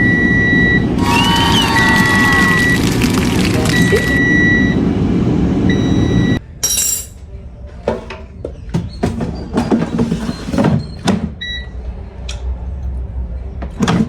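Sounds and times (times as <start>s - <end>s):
air fryer fan: 0.0s - 6.4s
short beeps: 5.7s - 6.4s.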